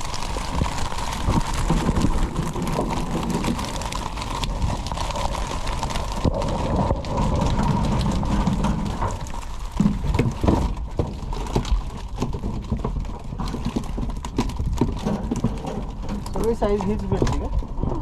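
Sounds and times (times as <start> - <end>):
irregular knocking and clattering: 7.6 - 18.0.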